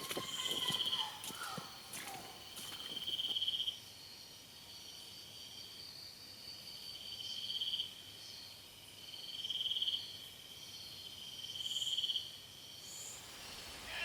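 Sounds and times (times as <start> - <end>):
rapid insect trills: 0.0 - 4.2, 11.0 - 14.0
insect chorus drone: 0.0 - 14.0.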